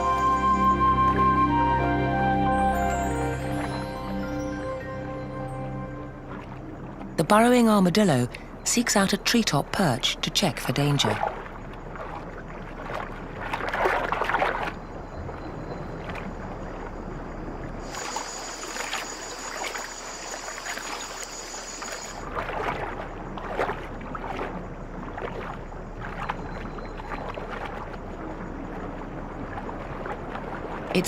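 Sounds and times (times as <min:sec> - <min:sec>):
water splashing and sloshing: 0:00.0 - 0:31.0
steady high-pitched whine: 0:14.8 - 0:22.4.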